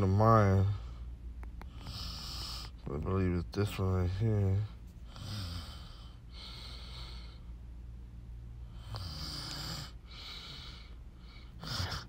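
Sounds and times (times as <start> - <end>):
steady low hum: 0.0 - 12.0
person breathing: 4.5 - 7.6, 9.6 - 12.0.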